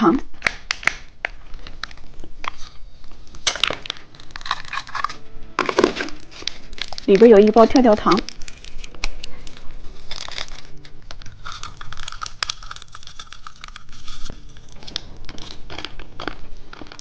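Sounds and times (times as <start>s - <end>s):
plastic packaging crinkling: 0.3s - 17.0s.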